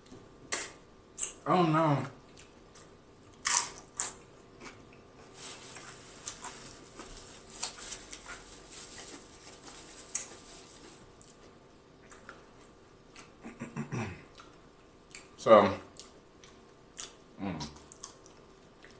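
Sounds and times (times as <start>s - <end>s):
tortilla chip crunching: 5.7s - 11.4s.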